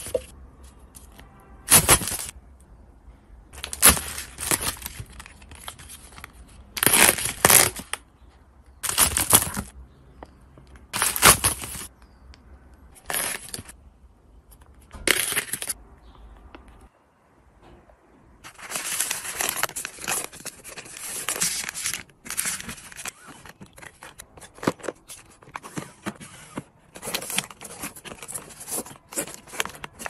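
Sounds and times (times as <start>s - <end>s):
food containers rustling and crunching: 3.6s - 12.0s, 12.9s - 13.8s, 18.4s - 30.0s.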